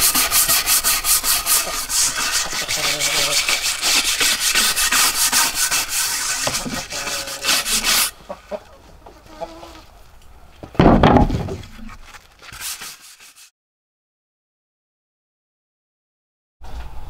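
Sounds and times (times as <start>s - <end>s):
wood scraping strokes: 0.0s - 10.0s, 10.6s - 13.5s.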